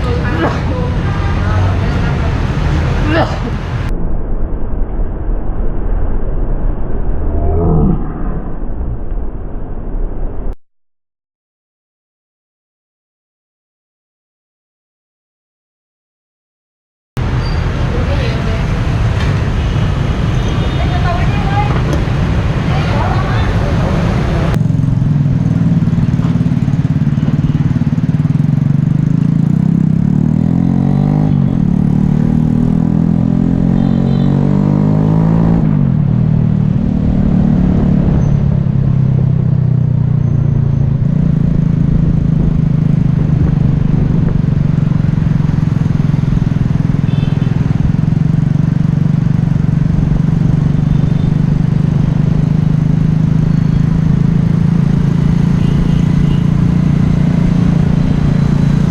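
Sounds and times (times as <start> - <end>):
motorcycle engine running: 24.1 - 58.9.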